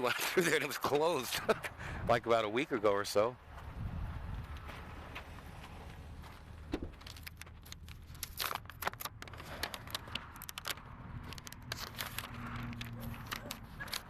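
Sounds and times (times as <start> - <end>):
banknotes flicking and rustling: 6.8 - 14.0.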